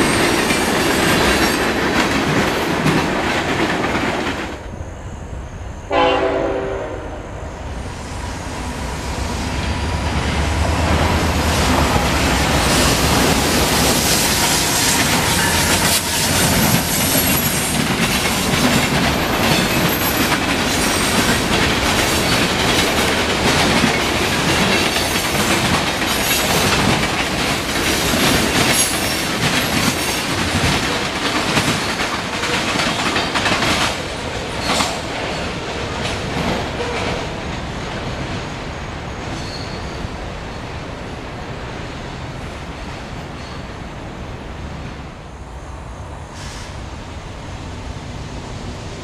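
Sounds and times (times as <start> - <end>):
freight train wheels clattering: 0.0 - 4.6, 10.1 - 38.5.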